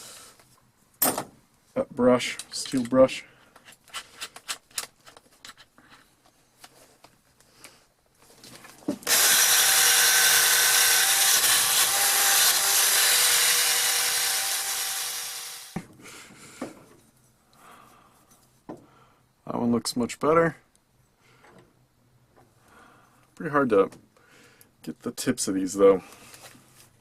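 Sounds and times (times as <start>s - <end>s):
polishing wheel buffing metal: 9.1s - 15.8s.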